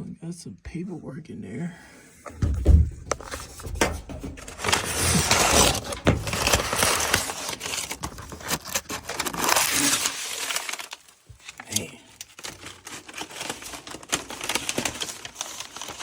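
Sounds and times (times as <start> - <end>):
knocks and scrapes on metal unit: 2.3 - 7.2
paper rustling and crinkling: 2.3 - 16.0.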